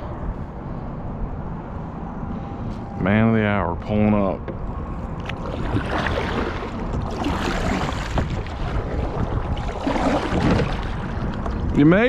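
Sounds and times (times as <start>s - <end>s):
wind rushing over microphone: 0.0s - 12.0s
water splashing against kayak hull: 5.2s - 11.8s.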